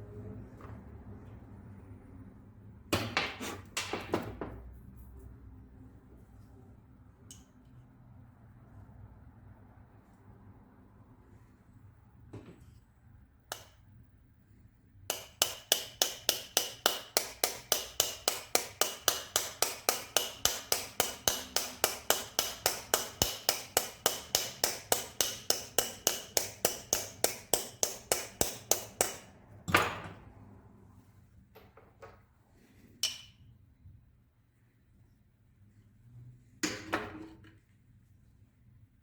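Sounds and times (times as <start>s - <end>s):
hammer tapping on metal: 13.5s - 13.8s, 15.1s - 29.3s.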